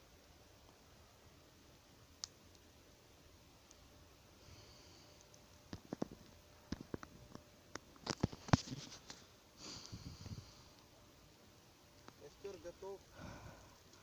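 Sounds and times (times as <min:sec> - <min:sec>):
campfire crackling: 0:00.0 - 0:14.0
short rustling hiss: 0:08.0 - 0:11.0.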